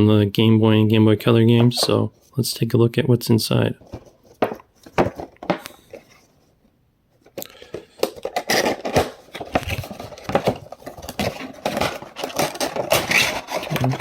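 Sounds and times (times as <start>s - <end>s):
packaging rustling and crinkling: 7.3s - 14.0s.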